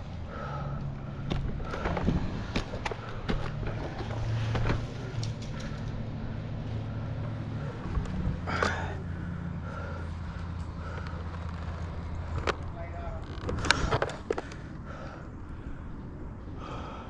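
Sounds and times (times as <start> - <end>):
engine idling: 0.0 - 17.0
gear clicking and rustling: 0.8 - 9.2, 9.8 - 14.8.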